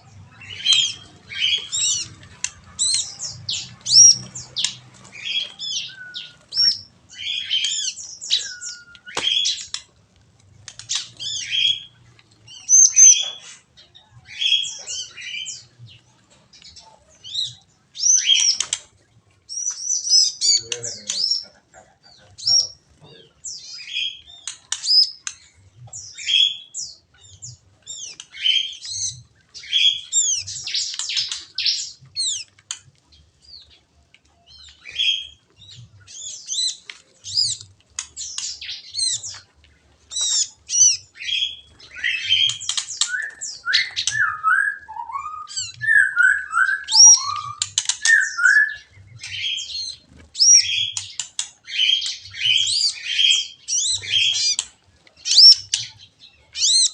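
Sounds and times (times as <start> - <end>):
small birds chirping: 0.0 - 56.9
low downward-sliding bird calls: 40.2 - 54.6.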